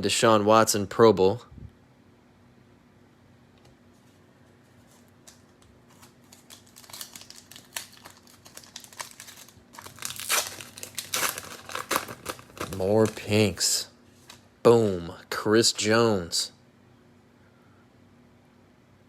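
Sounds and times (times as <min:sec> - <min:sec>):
faint steady hum: 0:00.0 - 0:19.0
cellophane wrapper crinkling: 0:04.8 - 0:13.6.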